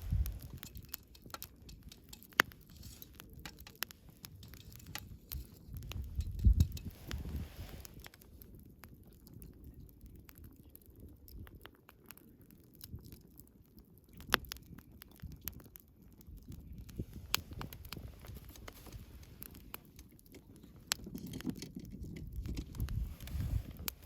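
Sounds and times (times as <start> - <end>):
sharp fire pops: 0.0 - 8.4, 16.4 - 24.0
bonfire crackling: 0.0 - 24.0
low rumble of flames: 0.0 - 24.0.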